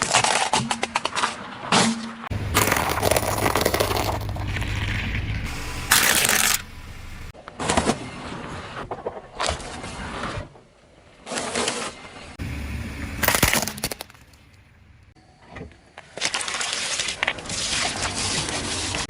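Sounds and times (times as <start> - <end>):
objects crunching under car tyre: 0.0 - 12.3, 13.2 - 14.6.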